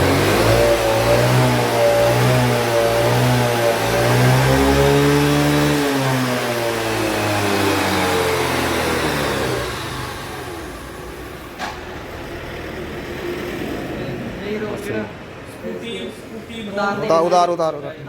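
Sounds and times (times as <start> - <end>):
scooter engine revving: 0.0 - 14.2.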